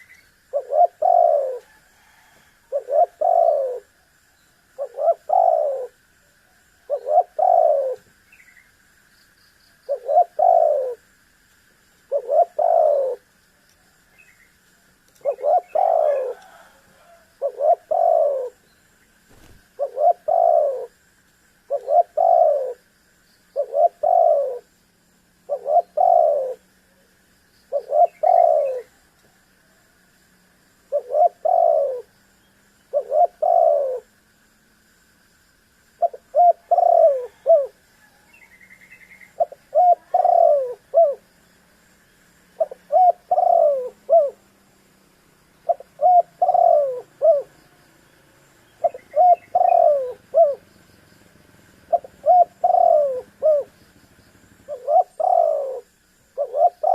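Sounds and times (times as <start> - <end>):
dove cooing: 0.0 - 4.1, 4.7 - 6.0, 6.8 - 8.2, 9.9 - 11.0, 12.1 - 13.3, 15.2 - 18.6, 19.3 - 21.0, 21.7 - 22.9, 23.6 - 24.7, 25.4 - 27.1, 27.7 - 29.0, 30.9 - 32.1, 32.9 - 34.1, 36.0 - 41.3, 42.6 - 44.5, 45.6 - 47.6, 48.7 - 50.8, 51.8 - 56.9.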